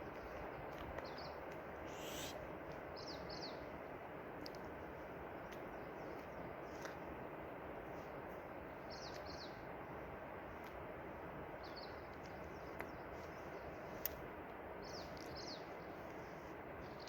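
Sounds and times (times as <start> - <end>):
small bird chirping: 1.9 - 2.4.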